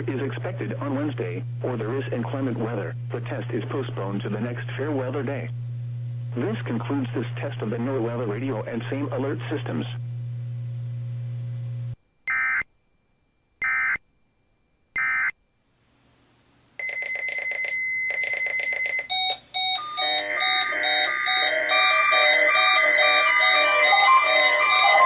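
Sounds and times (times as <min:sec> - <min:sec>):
steady low hum: 0:00.0 - 0:12.2
music: 0:19.8 - 0:25.0
digital data bursts: 0:20.4 - 0:25.0.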